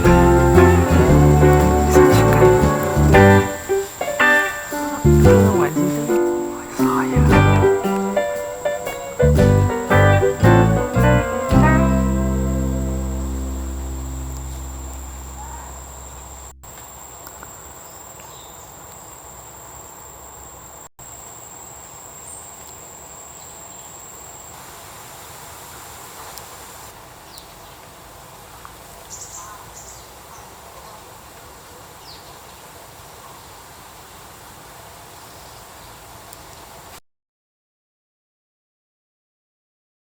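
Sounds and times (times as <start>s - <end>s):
faint chirps: 0.0s - 11.0s, 12.4s - 18.8s
high insect whine: 0.0s - 26.9s
insect hiss: 0.0s - 37.0s.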